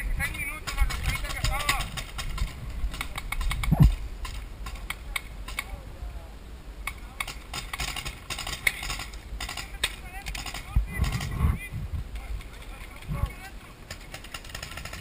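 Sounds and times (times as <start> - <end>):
paintball markers firing: 0.6 - 5.7, 6.9 - 11.4, 13.8 - 15.0
faint distant voices: 2.8 - 7.8.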